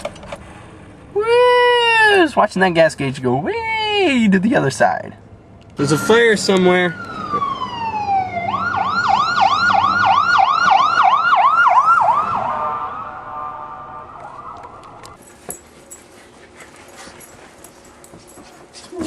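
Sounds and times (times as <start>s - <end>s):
emergency vehicle siren: 5.8s - 15.2s.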